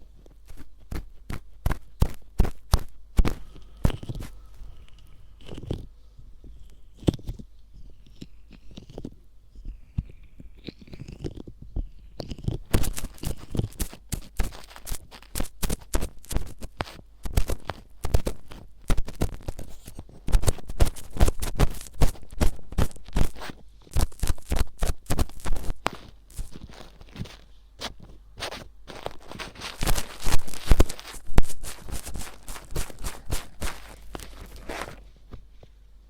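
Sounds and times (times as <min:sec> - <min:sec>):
ear pick scraping microphone: 0:12.5 - 0:35.4.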